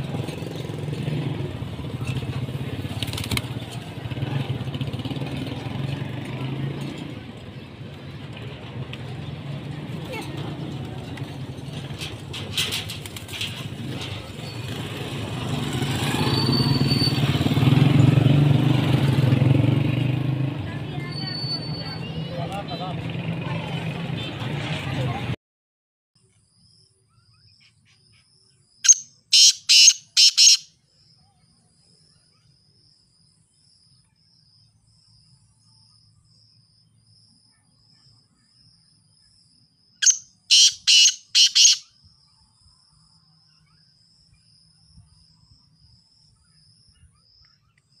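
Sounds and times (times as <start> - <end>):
bird harsh calls: 27.4 - 30.7, 40.0 - 41.9.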